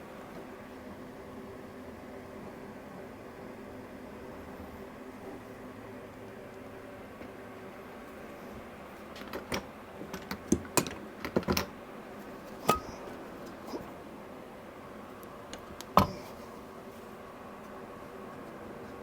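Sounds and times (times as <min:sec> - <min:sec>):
sharp clicks and light knocks: 0:09.1 - 0:11.7.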